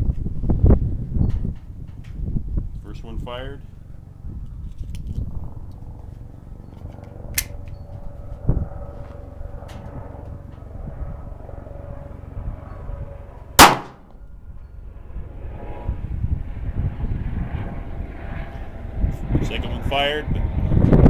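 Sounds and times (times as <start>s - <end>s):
pistol shot with echo: 13.6s - 14.0s.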